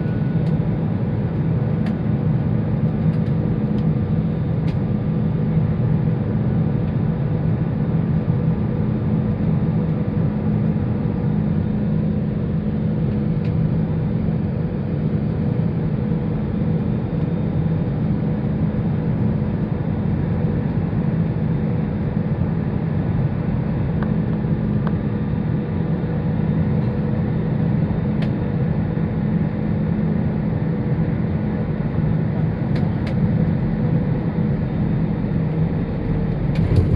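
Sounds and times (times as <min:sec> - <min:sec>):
airplane cabin drone: 0:00.0 - 0:36.9.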